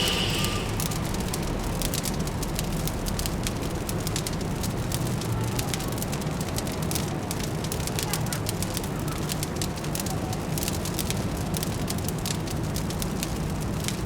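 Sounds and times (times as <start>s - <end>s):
low city hum: 0.0s - 3.1s
fire crackling and popping: 0.0s - 14.0s.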